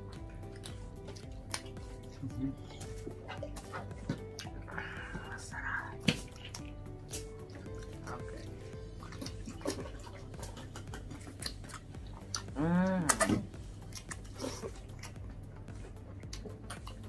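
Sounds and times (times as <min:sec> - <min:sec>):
people chewing and lip smacking: 0:00.0 - 0:17.0
person humming: 0:02.2 - 0:03.0, 0:12.4 - 0:13.5.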